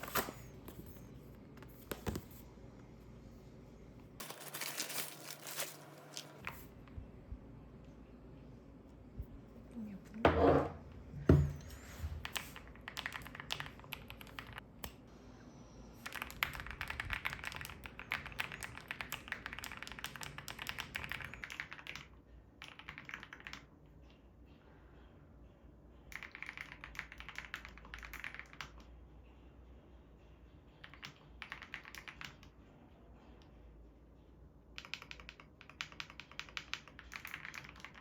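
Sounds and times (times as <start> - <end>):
mechanical keyboard typing: 12.2 - 14.6, 16.0 - 23.7, 26.1 - 28.9, 30.8 - 32.5, 34.8 - 38.0.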